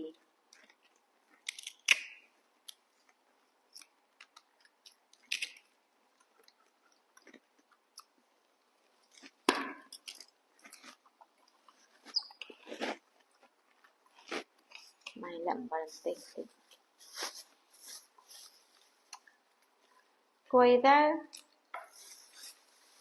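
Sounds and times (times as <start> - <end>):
crunchy apple chewing: 0.5 - 15.2.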